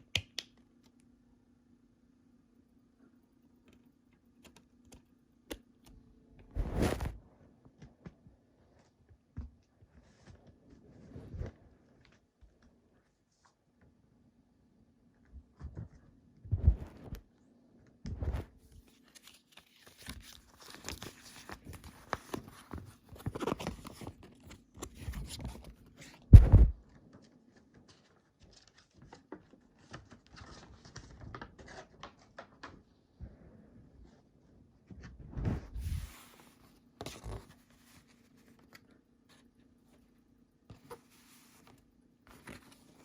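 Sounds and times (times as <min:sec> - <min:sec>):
faint steady hum: 0:00.0 - 0:29.7.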